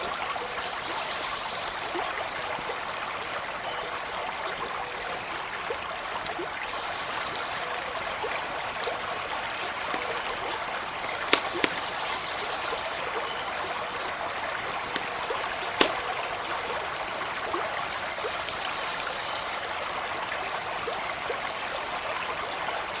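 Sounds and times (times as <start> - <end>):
stream running: 0.0 - 23.0
campfire crackling and popping: 1.8 - 18.7, 19.4 - 21.4
loud fire snaps: 11.0 - 12.8, 13.6 - 16.4.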